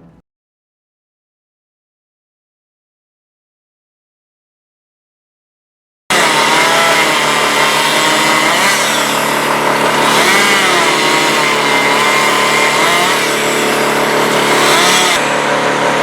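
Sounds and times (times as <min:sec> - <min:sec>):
chainsaw cutting: 0:06.1 - 0:16.0.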